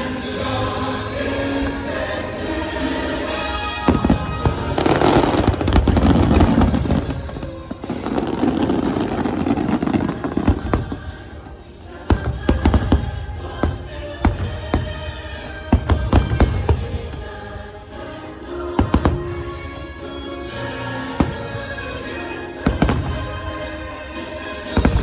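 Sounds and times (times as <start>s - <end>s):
choir-backed soundtrack music: 0.0s - 25.0s
loud firework bursts: 3.3s - 17.7s, 18.8s - 25.0s.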